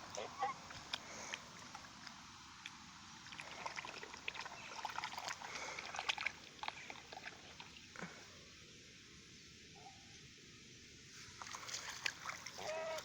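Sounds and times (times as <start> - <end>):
goose splashing in puddle: 0.0 - 7.8, 11.2 - 13.0.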